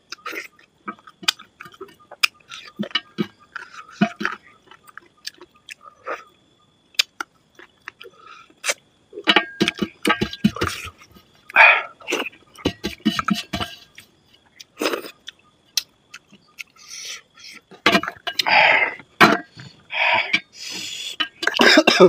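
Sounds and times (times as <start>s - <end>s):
person chewing and lip-smacking: 0.0s - 6.2s, 6.9s - 8.8s, 9.7s - 19.1s.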